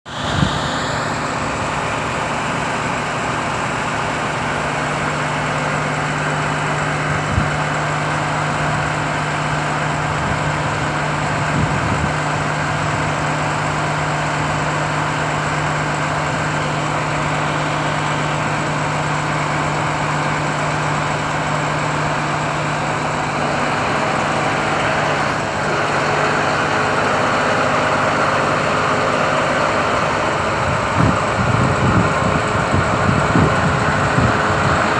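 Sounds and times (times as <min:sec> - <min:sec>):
truck diesel engine idling: 0:00.1 - 0:34.9.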